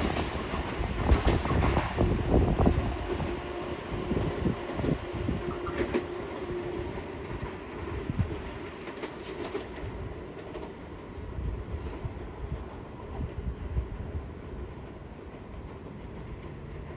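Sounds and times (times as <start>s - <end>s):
wheels clacking over rail joints: 0.0s - 10.9s
train low rumble: 0.0s - 16.9s.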